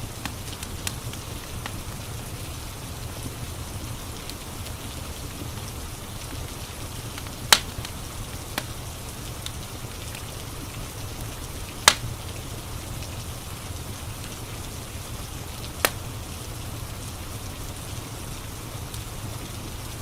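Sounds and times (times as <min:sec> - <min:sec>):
steady rain: 0:00.0 - 0:20.0
wood fire crackling: 0:00.0 - 0:20.0
sharp pops of fire: 0:07.2 - 0:08.0, 0:11.8 - 0:12.2, 0:15.8 - 0:16.0.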